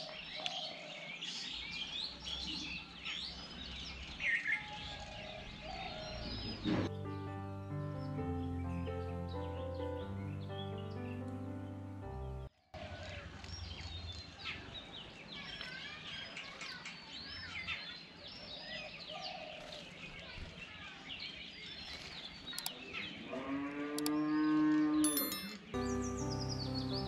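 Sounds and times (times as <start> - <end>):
small birds chirping: 0.0 - 12.5, 13.2 - 23.2, 24.0 - 27.0
background music: 6.9 - 12.5, 25.1 - 27.0.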